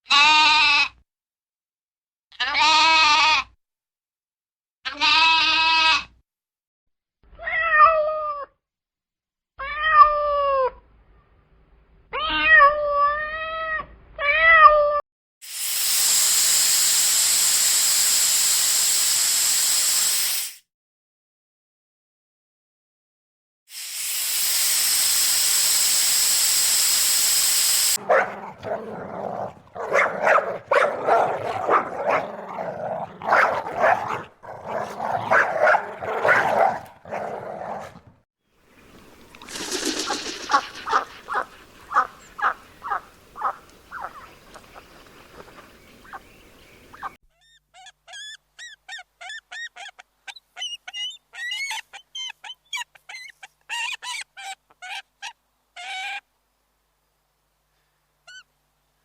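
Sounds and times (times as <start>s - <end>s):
dog barking: 28.0s - 38.1s, 40.9s - 44.3s
quick short calls: 39.4s - 44.3s.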